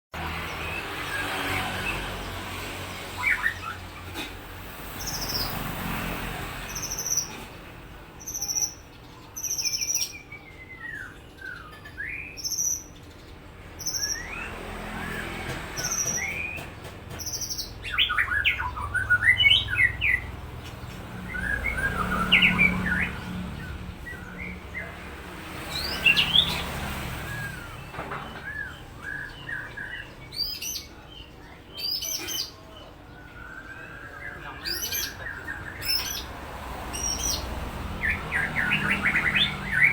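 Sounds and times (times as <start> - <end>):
bird singing whistles and trills: 8.2 - 13.2, 13.8 - 20.3, 21.2 - 24.9, 25.7 - 31.0, 36.9 - 39.9.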